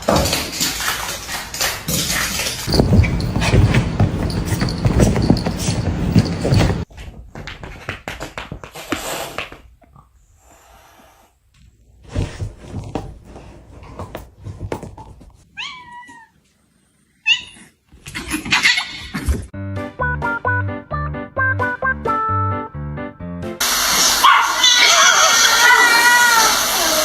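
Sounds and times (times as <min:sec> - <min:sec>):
knocks and rustling: 0:01.9 - 0:08.7, 0:12.0 - 0:15.4
cat meowing: 0:15.6 - 0:16.4.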